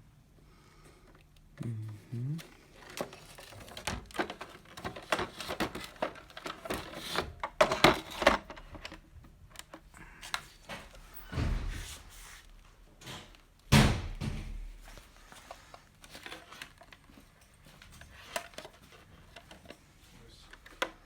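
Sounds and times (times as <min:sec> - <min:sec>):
plastic parts clicking and knocking: 0:02.7 - 0:11.0, 0:13.0 - 0:19.8, 0:20.4 - 0:21.0
loud thump: 0:11.3 - 0:11.9.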